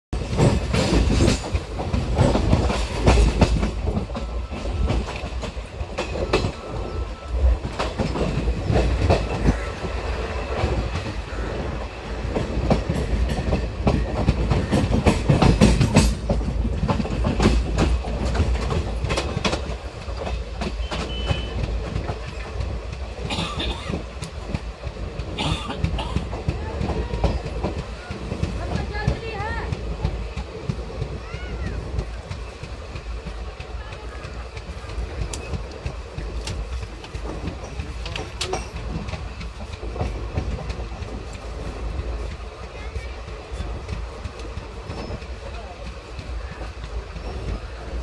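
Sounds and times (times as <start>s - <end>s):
train coach rumbling: 0.1s - 48.0s
wheels clattering over rail joints: 0.2s - 48.0s.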